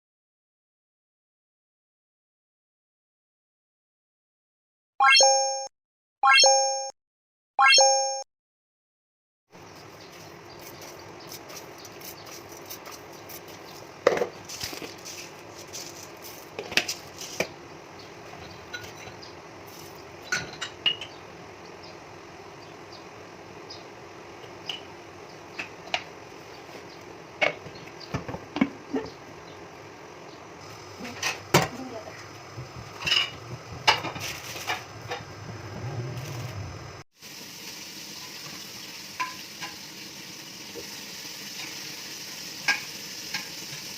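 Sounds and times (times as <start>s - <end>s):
utensils and dishes clinking: 18.4s - 21.2s, 33.0s - 35.2s.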